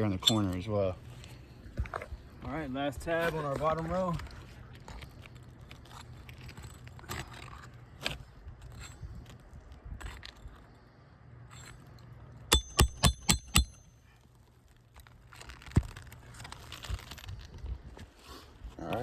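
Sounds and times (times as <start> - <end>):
hammer striking metal nail puller: 12.5 - 13.9.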